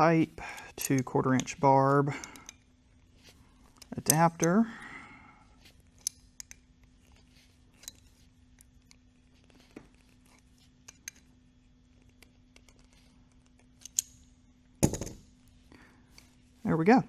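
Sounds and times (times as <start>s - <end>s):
faint steady hum: 0.0s - 17.0s
small metallic clicks and taps: 0.5s - 1.6s, 5.9s - 6.6s, 7.8s - 11.3s, 12.0s - 15.2s
loud clunk: 14.8s - 15.2s.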